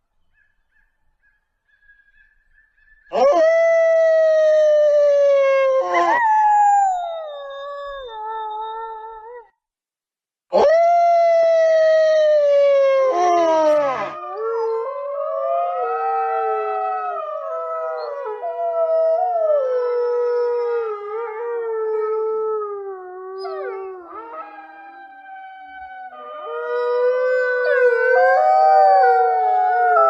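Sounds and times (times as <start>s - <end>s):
wolves howling: 10.6s - 30.0s.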